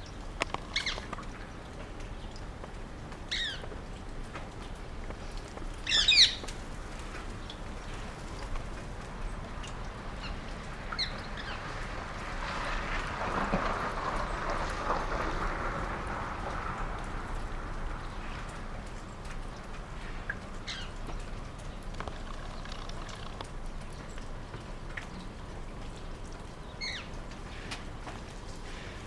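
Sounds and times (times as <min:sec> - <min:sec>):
parakeets screeching: 0:05.9 - 0:06.4.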